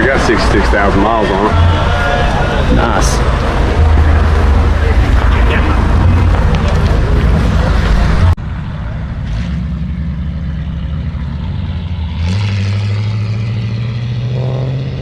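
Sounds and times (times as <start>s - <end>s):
car engine idling: 1.5s - 12.4s.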